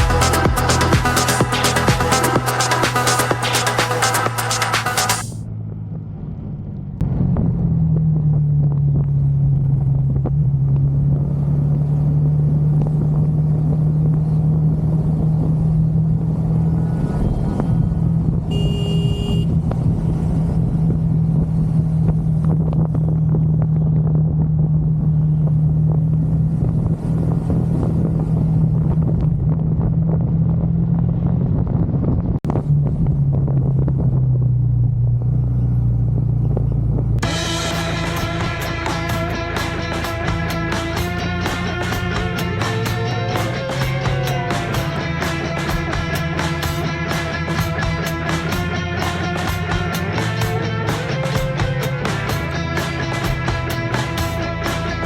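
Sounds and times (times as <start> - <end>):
motorcycle engine running: 0.0 - 55.0
short high tone: 18.5 - 19.5.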